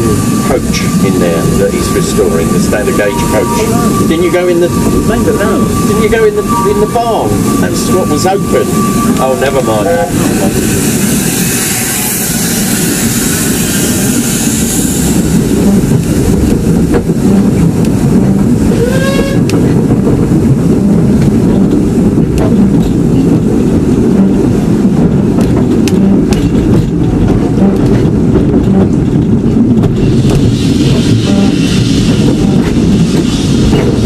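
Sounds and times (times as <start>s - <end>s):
train squeal: 0.0s - 15.9s, 18.6s - 19.5s
rail clicks: 0.0s - 34.0s
train rumbling on track: 0.0s - 34.0s.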